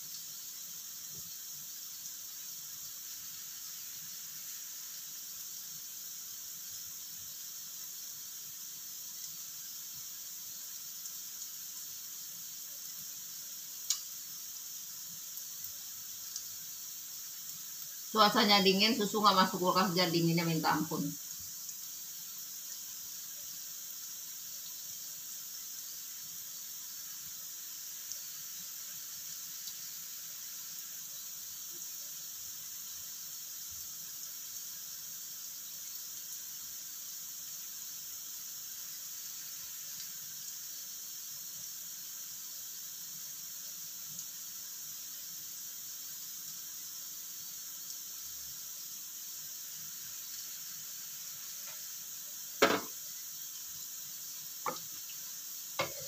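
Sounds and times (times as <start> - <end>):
food sizzling in oil: 0.0 - 56.0
oil popping: 52.6 - 53.0.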